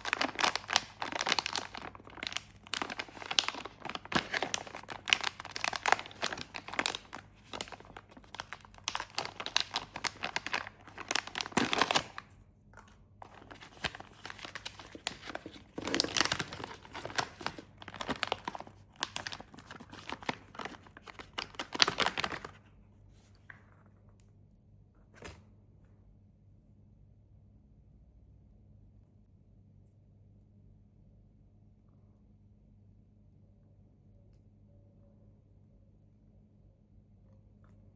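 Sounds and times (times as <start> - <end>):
plastic wrappers crinkling: 0.0 - 12.4, 13.2 - 22.6.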